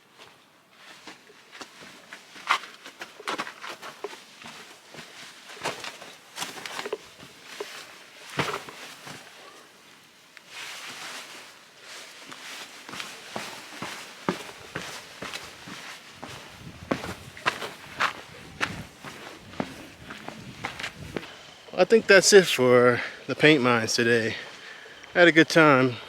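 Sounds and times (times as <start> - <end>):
footsteps on dirt trail: 0.1 - 9.6, 10.4 - 21.5.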